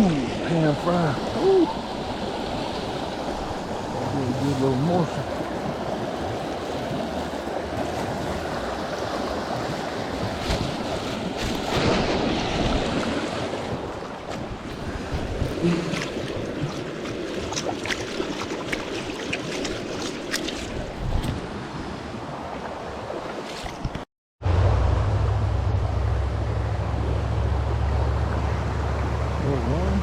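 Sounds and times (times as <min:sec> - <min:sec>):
stream water rushing: 0:00.0 - 0:30.0
wind buffeting microphone: 0:12.0 - 0:18.0.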